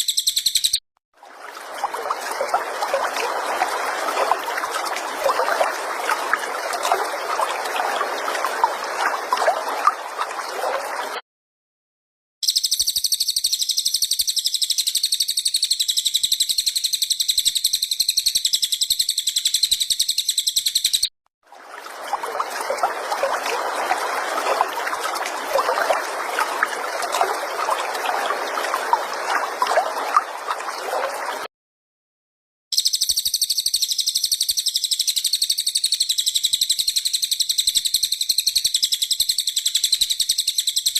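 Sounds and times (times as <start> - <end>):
rapid buzzing bird trill: 0.0 - 0.8, 12.4 - 21.1, 32.8 - 40.9
trickling water: 1.2 - 11.2, 21.4 - 31.5.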